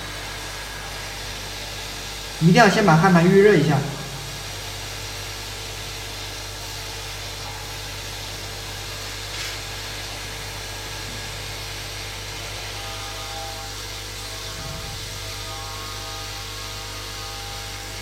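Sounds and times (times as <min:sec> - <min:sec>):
hot air nozzle blowing: 0:00.0 - 0:18.0
low hum: 0:02.5 - 0:04.7.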